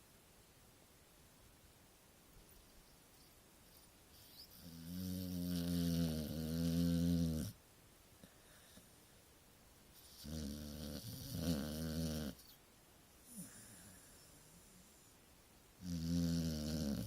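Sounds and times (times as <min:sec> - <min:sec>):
dog snoring: 0:04.2 - 0:07.6, 0:10.0 - 0:12.6, 0:15.8 - 0:17.0.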